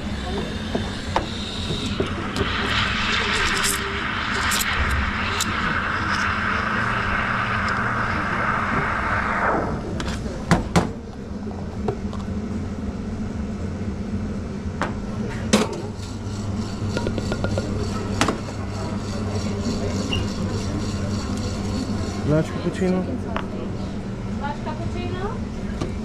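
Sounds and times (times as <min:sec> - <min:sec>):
low hum: 0:00.0 - 0:10.5, 0:15.5 - 0:25.6
steam wand hissing: 0:00.0 - 0:10.5, 0:15.6 - 0:22.8.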